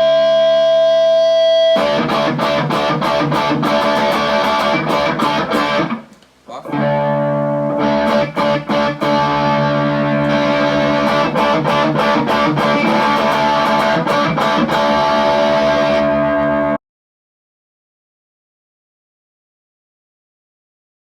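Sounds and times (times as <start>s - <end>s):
distorted electric guitar chords: 0.0s - 16.8s.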